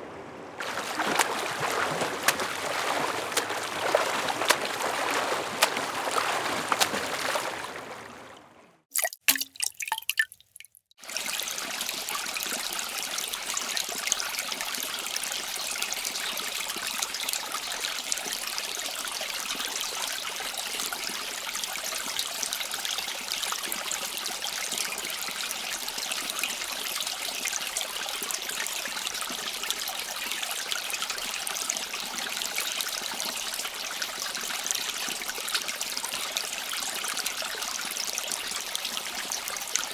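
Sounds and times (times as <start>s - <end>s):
water trickling: 0.6s - 16.2s
short clicks or drips: 8.9s - 10.8s.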